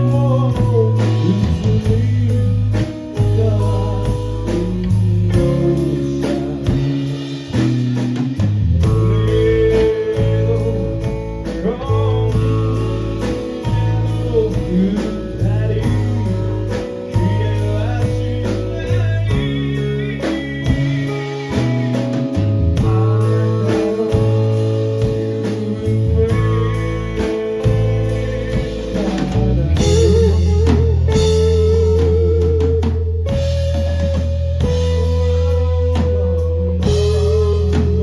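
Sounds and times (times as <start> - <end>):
bass guitar: 0.0 - 38.0
electric guitar: 0.0 - 38.0
person singing: 0.0 - 38.0
steady drum beat: 0.0 - 38.0.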